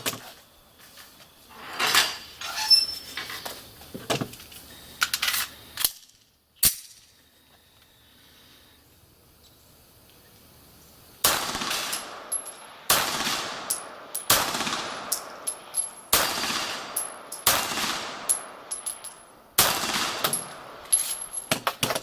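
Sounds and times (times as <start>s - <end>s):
pistol shots with echo: 11.2s - 21.4s
sharp cracks: 11.2s - 22.0s.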